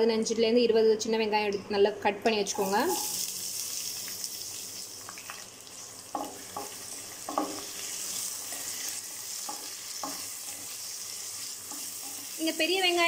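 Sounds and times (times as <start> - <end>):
shallots sizzling in hot oil: 2.5 - 13.0
spatula scraping a pan: 6.6 - 12.4.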